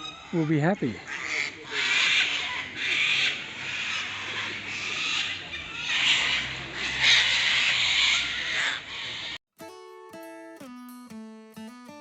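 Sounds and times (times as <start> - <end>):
cockatoos screeching: 0.0 - 9.4
acoustic guitar music: 9.6 - 12.0.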